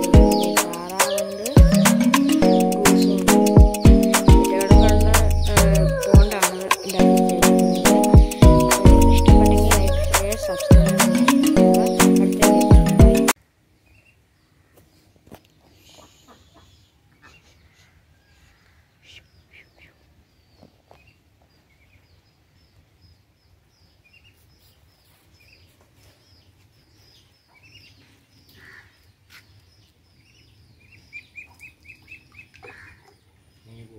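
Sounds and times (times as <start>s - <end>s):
high bird chirps: 0.0s - 13.4s.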